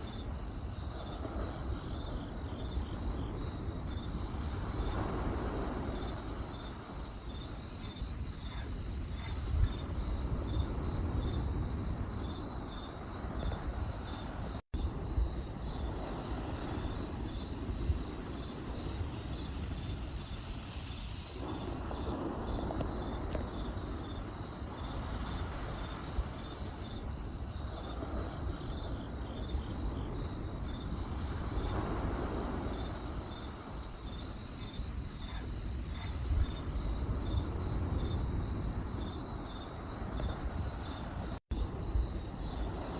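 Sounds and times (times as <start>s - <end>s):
crickets chirping: 0.0s - 42.9s.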